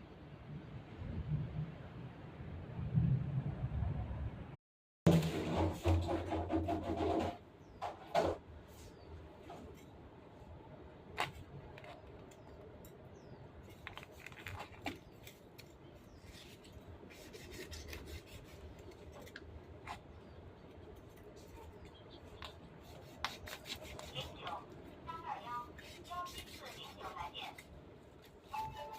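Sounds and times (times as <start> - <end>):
rubbing or scraping sounds: 5.1 - 9.9, 13.6 - 28.9.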